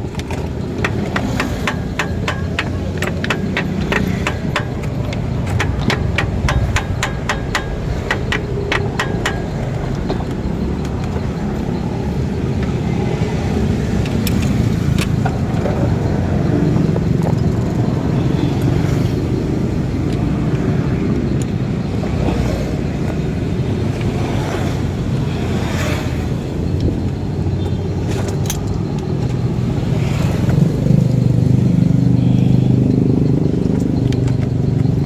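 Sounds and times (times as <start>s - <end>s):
car engine running: 0.0s - 20.8s
sharp metallic clicks: 0.0s - 35.0s.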